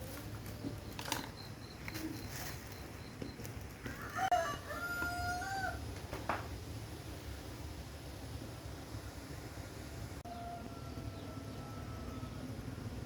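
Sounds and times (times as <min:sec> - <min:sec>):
rooster crowing: 0:03.8 - 0:05.9, 0:10.2 - 0:12.6.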